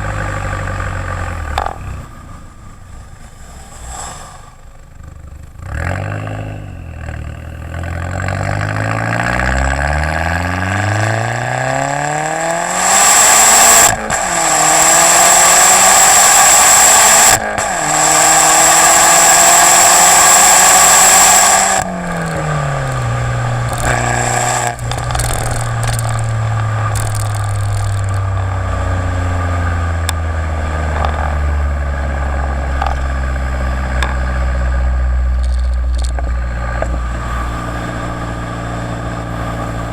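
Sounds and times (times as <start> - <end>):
turbocharged car engine accelerating: 0.0 - 39.9.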